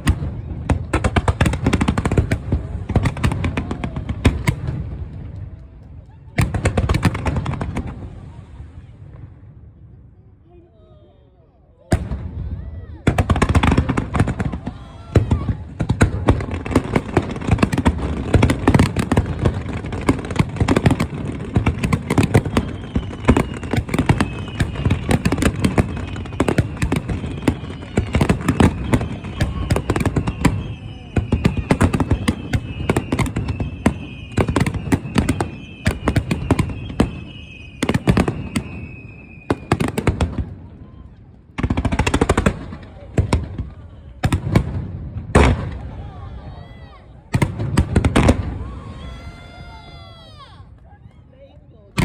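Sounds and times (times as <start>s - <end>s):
fireworks bangs and crackling: 0.0s - 10.1s, 11.8s - 50.8s
fireworks falling whistles: 12.0s - 41.2s.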